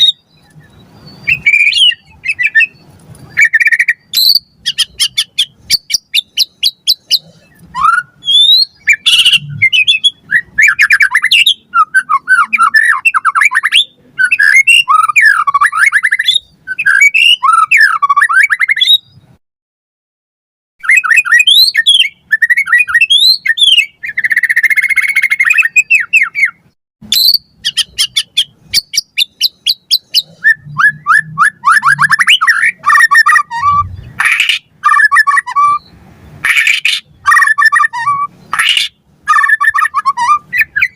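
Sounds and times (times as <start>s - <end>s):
songbird singing whistles and trills: 0.0s - 19.4s, 20.8s - 40.9s.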